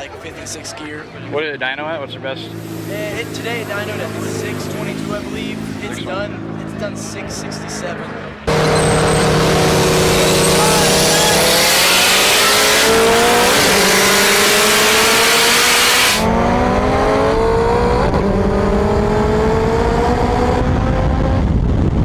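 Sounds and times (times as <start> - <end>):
car engine revving under full throttle: 2.4 - 22.0
turbo rushing hiss: 2.6 - 5.4.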